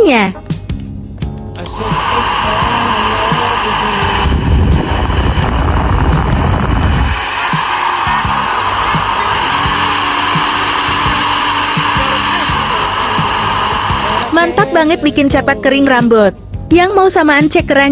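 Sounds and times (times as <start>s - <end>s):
hair dryer blowing: 1.6s - 14.8s.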